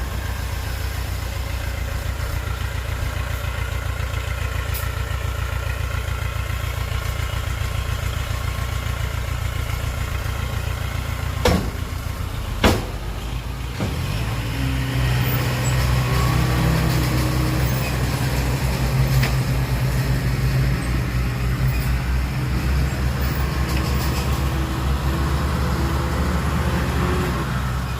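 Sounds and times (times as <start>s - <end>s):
heavy diesel engine running: 0.0s - 27.9s
sharp knocks: 11.4s - 12.0s, 12.6s - 13.2s.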